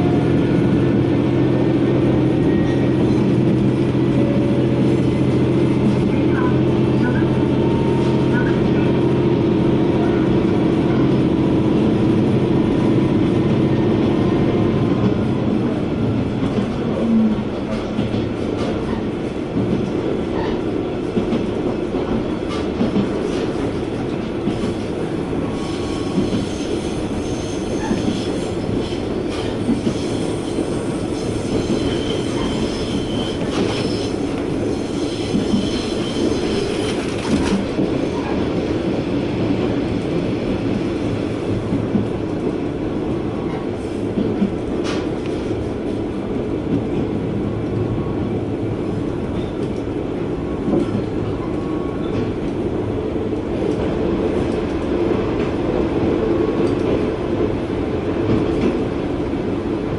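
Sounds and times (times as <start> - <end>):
railcar engine and wheels rumbling: 0.0 - 59.9
wheel squeal on a curve: 29.9 - 37.0.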